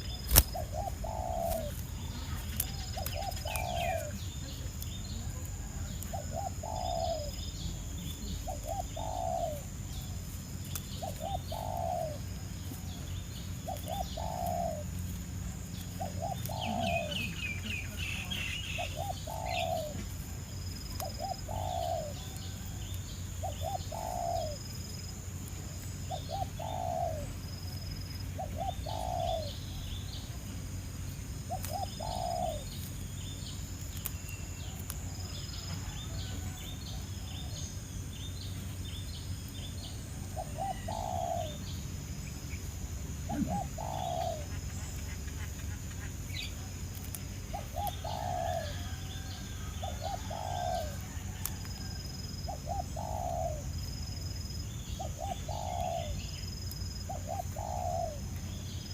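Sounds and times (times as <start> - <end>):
dove cooing: 0.0 - 30.3, 31.3 - 37.9, 39.6 - 58.9
small birds chirping: 0.0 - 58.9.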